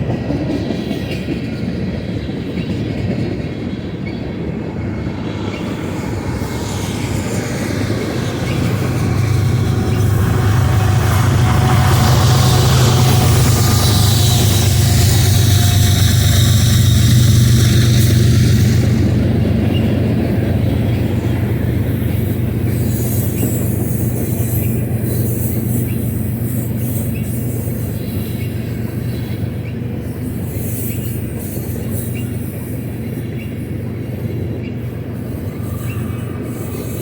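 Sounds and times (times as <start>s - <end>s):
train wheels rumbling on rail: 0.0s - 37.0s
low drone: 3.8s - 24.1s, 34.5s - 37.0s.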